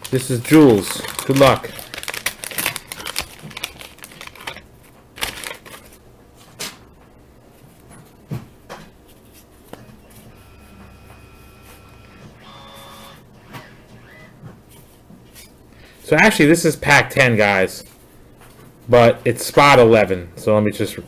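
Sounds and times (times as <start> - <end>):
cardboard cards slapping and rustling: 0.0 - 6.8.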